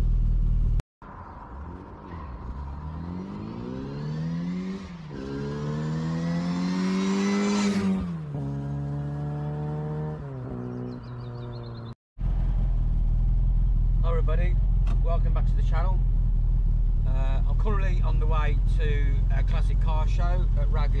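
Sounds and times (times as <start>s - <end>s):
car engine accelerating: 0.0s - 21.0s
low driving rumble: 12.2s - 21.0s.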